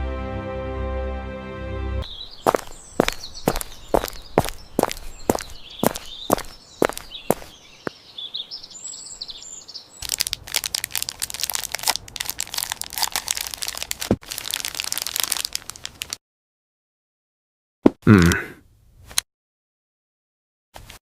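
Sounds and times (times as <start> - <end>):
dense crackling and crunching: 10.0 - 16.2.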